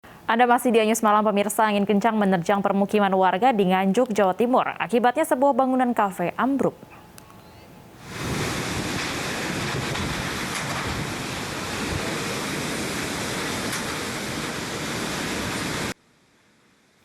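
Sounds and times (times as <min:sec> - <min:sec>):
heavy rain: 0:08.0 - 0:16.0
strong wind: 0:08.0 - 0:16.0.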